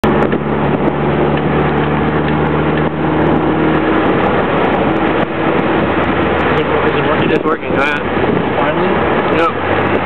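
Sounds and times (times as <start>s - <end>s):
car engine running hard: 0.0s - 10.0s
road and wind noise: 0.0s - 10.0s.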